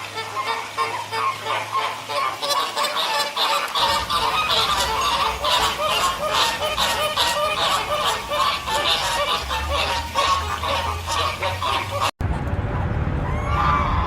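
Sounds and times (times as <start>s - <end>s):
geese honking: 0.0s - 12.2s.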